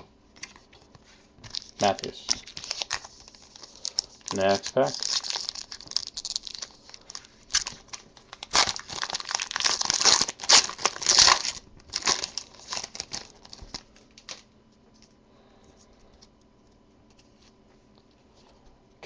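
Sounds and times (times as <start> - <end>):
card pack wrapper tearing and crinkling: 1.5 - 14.4.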